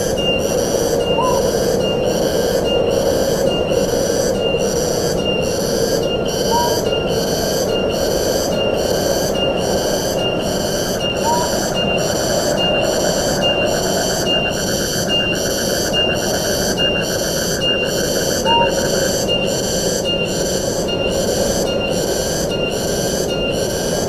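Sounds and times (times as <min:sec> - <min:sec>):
pulsing insect chorus: 0:00.0 - 0:24.0
rush of wind: 0:00.0 - 0:24.0.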